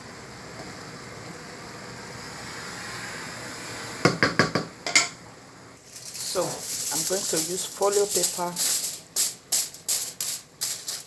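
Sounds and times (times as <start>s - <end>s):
fried rice hissing in pot: 2.0s - 4.0s, 5.8s - 11.0s.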